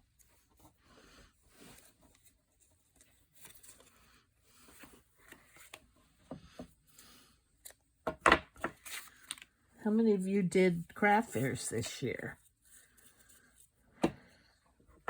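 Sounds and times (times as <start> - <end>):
faint paper rustling: 0.0 - 7.8, 8.6 - 9.7, 10.8 - 14.5.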